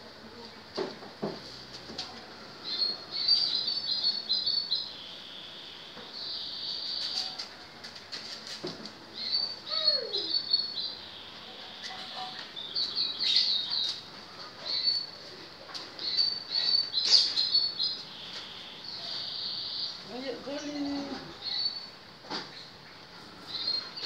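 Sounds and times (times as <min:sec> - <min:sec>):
small bird chirping: 0:09.2 - 0:15.2, 0:16.0 - 0:24.0.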